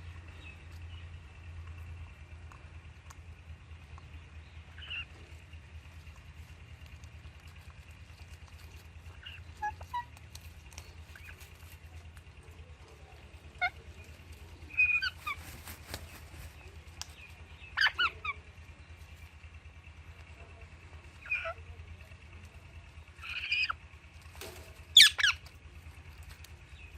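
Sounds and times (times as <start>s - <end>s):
steady low hum: 0.0s - 26.9s
parrots chirping and squawking: 4.8s - 5.1s, 8.7s - 11.6s, 13.4s - 15.8s, 17.5s - 18.4s, 21.2s - 21.6s, 23.2s - 23.8s, 24.9s - 25.5s.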